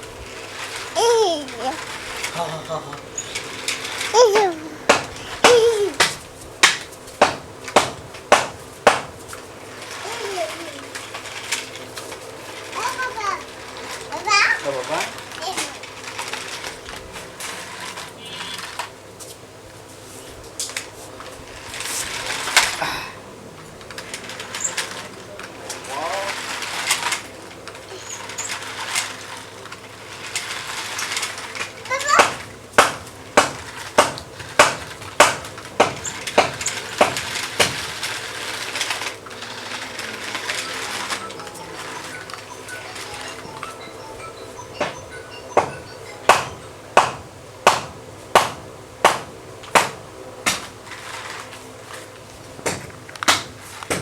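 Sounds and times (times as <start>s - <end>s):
toy car electric motor whirring: 0.0s - 6.8s, 9.6s - 19.0s, 20.7s - 22.8s, 23.6s - 32.5s, 33.6s - 46.2s, 50.8s - 52.1s
plastic clatters and clicks: 23.6s - 32.5s.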